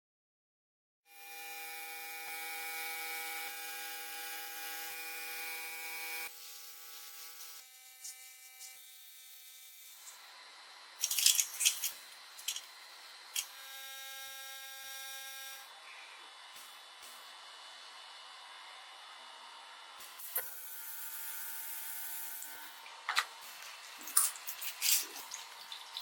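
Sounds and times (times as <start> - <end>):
electric power tool whining: 1.1 - 8.8, 11.0 - 15.8.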